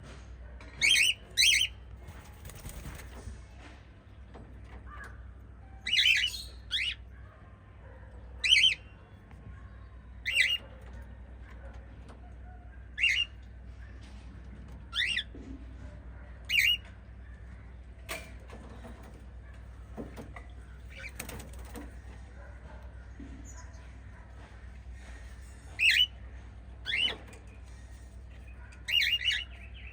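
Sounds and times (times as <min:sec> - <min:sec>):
cockatiels chirping: 0:00.8 - 0:01.8, 0:05.8 - 0:07.1, 0:08.4 - 0:09.0, 0:10.2 - 0:10.7, 0:12.9 - 0:13.5, 0:14.9 - 0:15.3, 0:16.5 - 0:16.9, 0:25.7 - 0:26.2, 0:26.8 - 0:27.3, 0:28.4 - 0:29.9.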